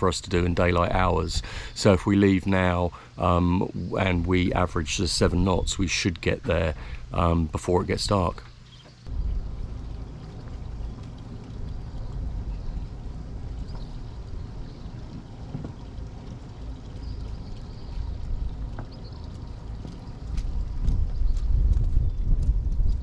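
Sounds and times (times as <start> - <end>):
water sloshing: 4.3 - 22.0
low rumble: 9.1 - 23.0.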